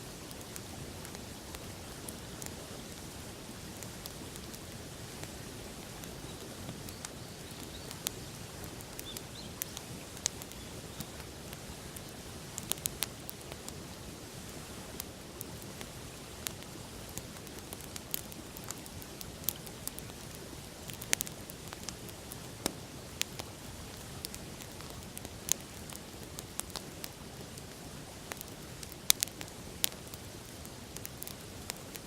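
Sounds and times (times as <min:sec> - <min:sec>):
campfire crackling and popping: 0:00.2 - 0:32.0.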